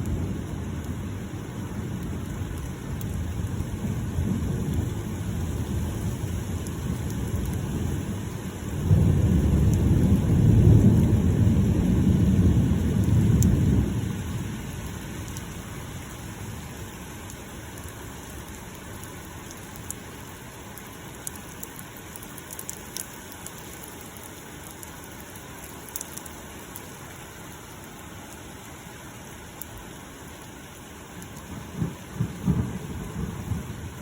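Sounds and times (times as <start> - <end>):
low rumble of thunder: 0.0 - 16.7, 31.4 - 34.0
steady rain falling: 0.0 - 34.0
sharp drips: 14.7 - 31.5.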